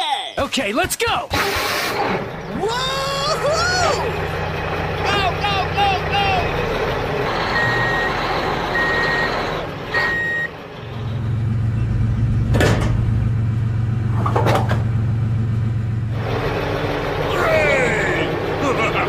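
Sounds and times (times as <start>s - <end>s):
truck engine humming: 1.4s - 19.0s
truck reversing alarm beeping: 1.6s - 14.1s.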